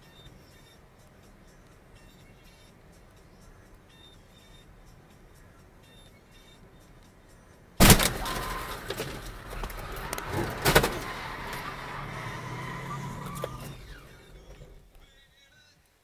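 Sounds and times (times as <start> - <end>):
bang: 7.8 - 9.3, 10.3 - 11.2
car crash: 7.8 - 14.9.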